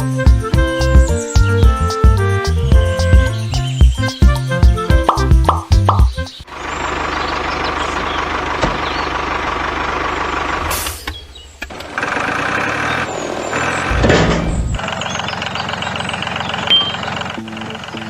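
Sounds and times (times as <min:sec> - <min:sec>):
truck engine rumbling: 0:05.1 - 0:18.0.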